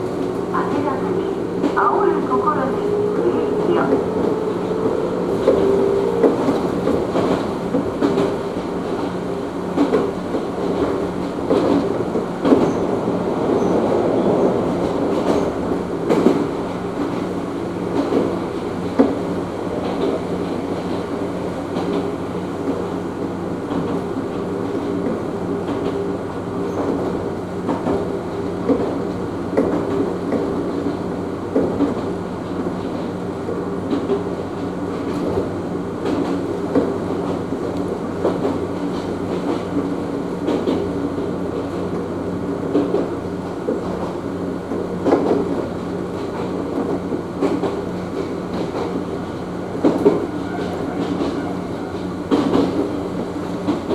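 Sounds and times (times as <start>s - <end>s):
wheels clicking over rail joints: 0.0s - 12.8s
train motor hum: 0.0s - 18.8s.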